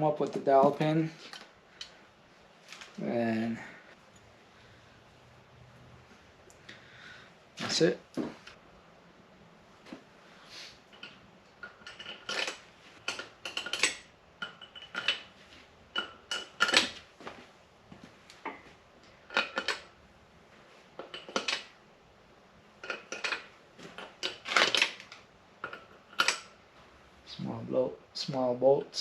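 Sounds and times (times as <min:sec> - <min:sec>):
metal bolts clinking: 0:10.9 - 0:17.1, 0:18.5 - 0:20.0, 0:21.0 - 0:21.7, 0:22.8 - 0:26.6.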